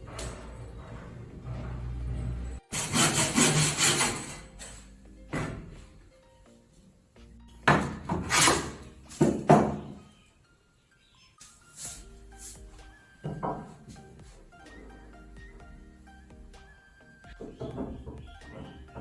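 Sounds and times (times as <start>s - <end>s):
hand tool rasping wood: 0.0s - 4.8s, 8.0s - 9.4s
background music: 0.0s - 19.0s.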